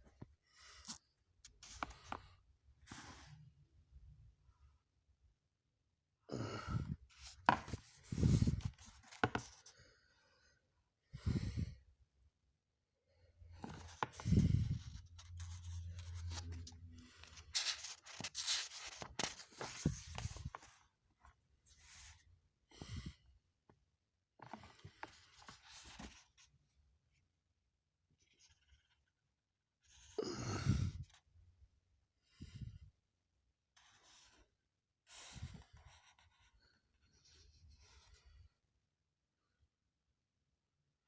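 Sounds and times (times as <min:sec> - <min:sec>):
paper rustling and tearing: 0:15.4 - 0:20.4.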